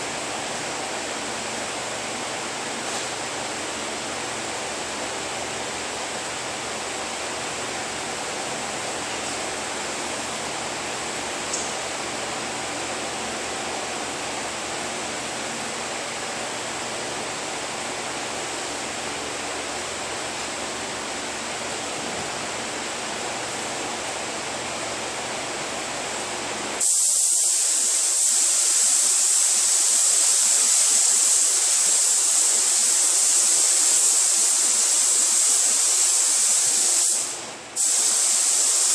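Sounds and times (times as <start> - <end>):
paint spray gun hissing: 26.8 - 38.9.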